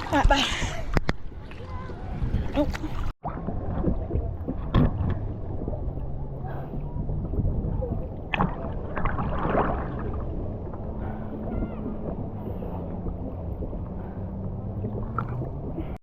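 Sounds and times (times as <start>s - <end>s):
sea water rushing: 0.0s - 16.0s
wind buffeting microphone: 0.0s - 16.0s.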